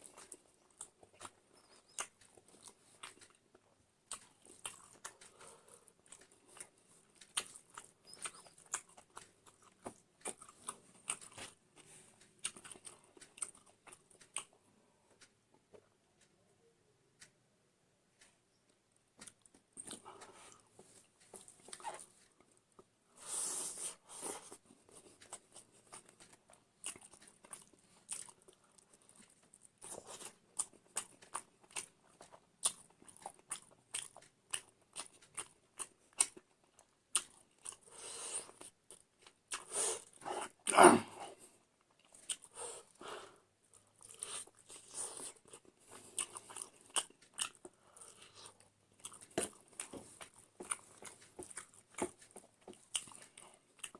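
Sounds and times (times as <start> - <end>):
chewing and crunching: 0.0 - 15.4, 19.1 - 40.8, 41.4 - 53.9.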